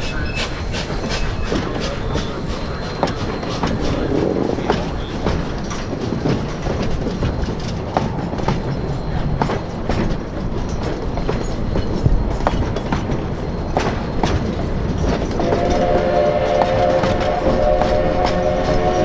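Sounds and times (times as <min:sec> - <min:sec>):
train rolling on rails: 0:00.0 - 0:19.0
wheels clicking over rail joints: 0:00.0 - 0:19.0
locomotive whistle chord: 0:15.4 - 0:19.0.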